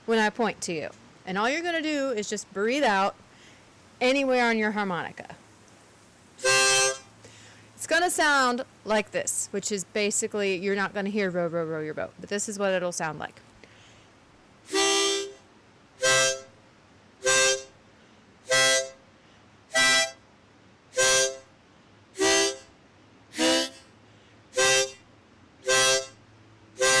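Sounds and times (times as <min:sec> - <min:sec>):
harmonica blow chords: 0:06.4 - 0:07.1, 0:14.7 - 0:15.4, 0:16.0 - 0:16.5, 0:17.2 - 0:17.8, 0:18.4 - 0:19.0, 0:19.7 - 0:20.2, 0:20.9 - 0:21.5, 0:22.2 - 0:23.9, 0:24.5 - 0:26.2, 0:26.8 - 0:27.0.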